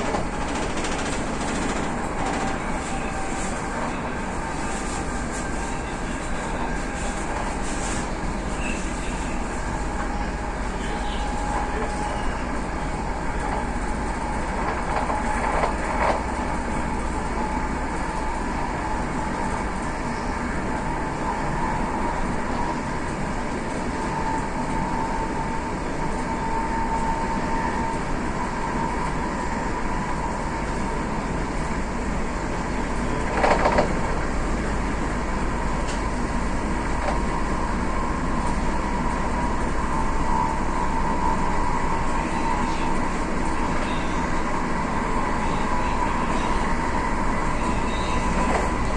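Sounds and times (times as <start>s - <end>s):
train knock: 0.0s - 3.3s
train running: 0.0s - 48.9s.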